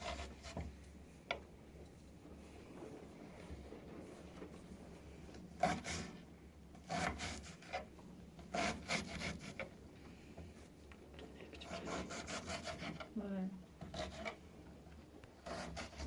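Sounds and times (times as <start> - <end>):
hand tool scraping wood: 0.0 - 0.7, 5.6 - 6.2, 6.8 - 9.7, 11.7 - 13.1, 13.8 - 14.4, 15.4 - 16.0.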